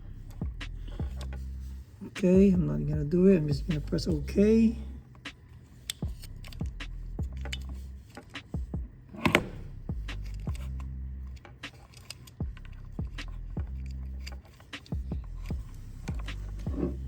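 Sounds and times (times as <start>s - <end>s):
low electrical hum: 0.0s - 17.0s
clicks and rattles of wiring connectors: 9.2s - 17.0s.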